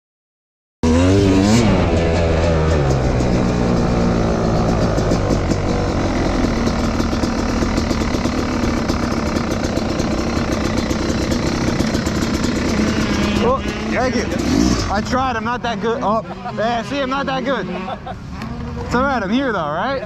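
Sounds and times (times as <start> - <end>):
motorcycle engine idling: 1.5 - 17.1.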